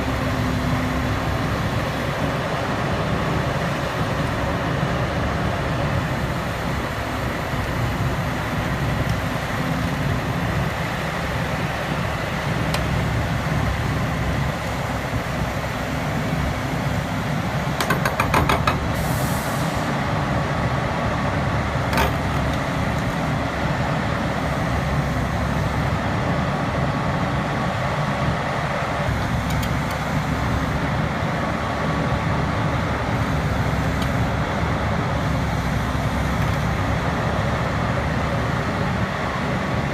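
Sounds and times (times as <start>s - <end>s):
heavy diesel engines running: 0.0s - 39.9s
short hiss: 19.0s - 19.9s.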